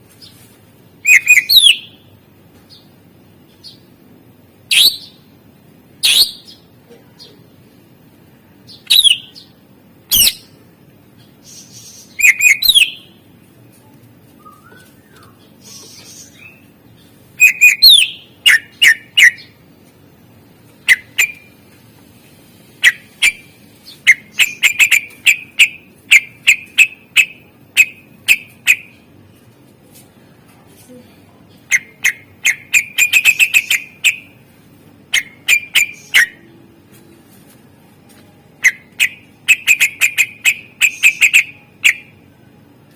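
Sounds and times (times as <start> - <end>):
leafbird whistled calls and chips: 1.0 - 2.0, 8.7 - 9.4, 11.4 - 13.1, 14.4 - 16.7, 17.4 - 19.5.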